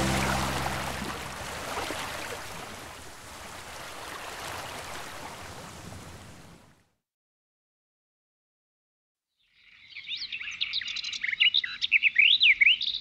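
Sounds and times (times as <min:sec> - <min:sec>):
running water: 0:00.0 - 0:05.4.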